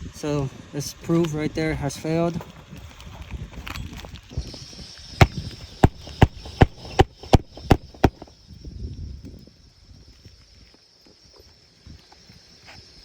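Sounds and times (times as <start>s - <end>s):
sharp knocks: 5.2s - 8.2s.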